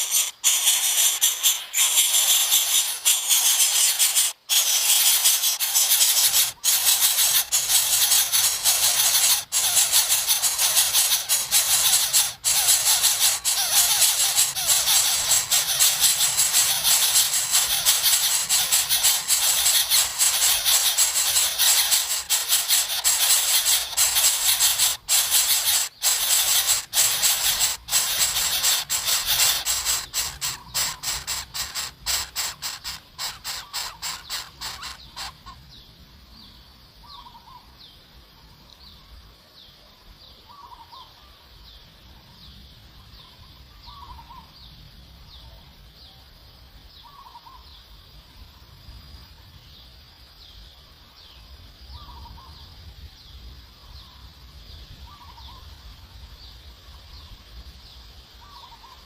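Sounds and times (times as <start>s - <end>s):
lower bird call: 0.0s - 35.6s, 58.4s - 59.0s
short high bird chirps: 0.0s - 35.6s.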